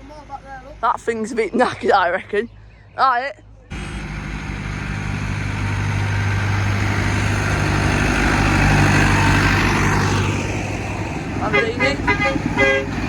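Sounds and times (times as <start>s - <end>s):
tractor engine running: 3.7s - 13.0s.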